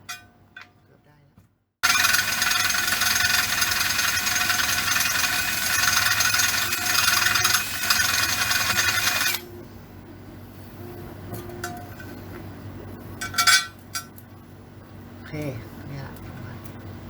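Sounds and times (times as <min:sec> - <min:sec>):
power tool whining: 0:01.8 - 0:09.5.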